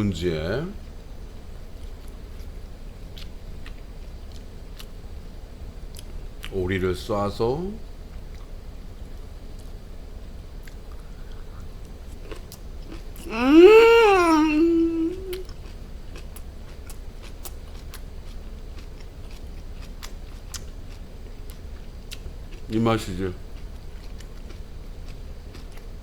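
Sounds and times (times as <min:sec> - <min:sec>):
person chewing: 0:12.2 - 0:22.3, 0:24.0 - 0:25.8
person humming mmm: 0:13.2 - 0:15.5.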